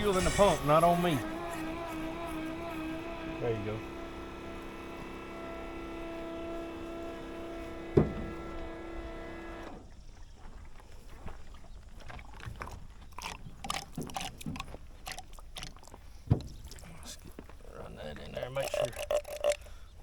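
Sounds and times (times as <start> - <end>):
machine hum: 0.0 - 9.8
sharp thump: 7.9 - 8.5.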